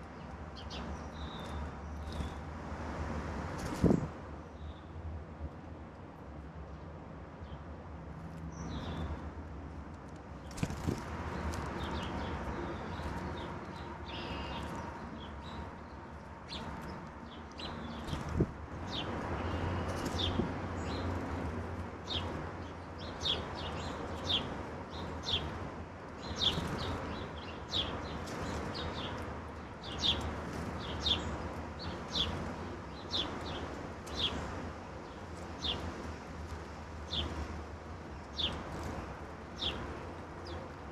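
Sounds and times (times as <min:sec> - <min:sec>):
songbirds chip notes: 0:11.4 - 0:18.2.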